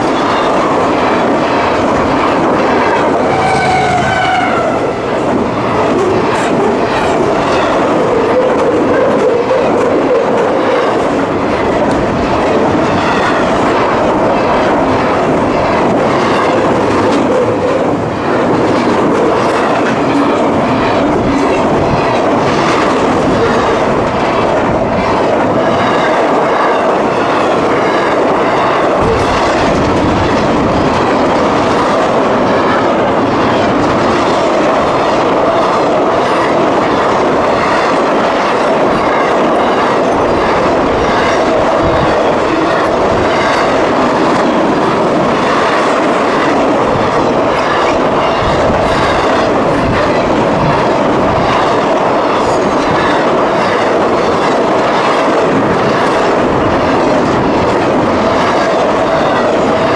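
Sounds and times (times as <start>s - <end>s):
freight train rumble and rattle: 0.0s - 59.9s
locomotive passing: 0.0s - 59.9s.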